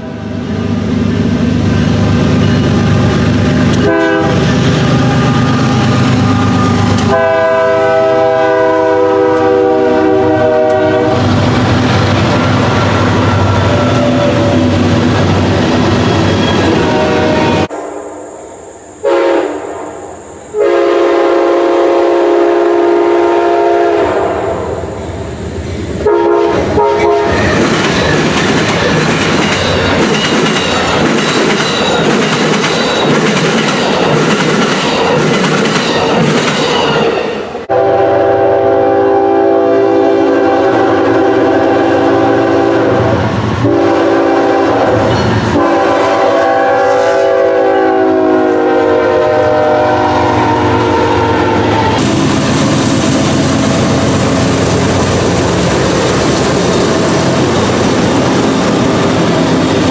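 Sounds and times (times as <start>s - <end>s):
train wheels and rail noise: 0.0s - 59.9s
locomotive air horn blasts: 3.8s - 11.4s, 16.6s - 18.0s, 19.0s - 19.8s, 20.5s - 24.8s, 26.0s - 27.5s, 37.7s - 52.4s.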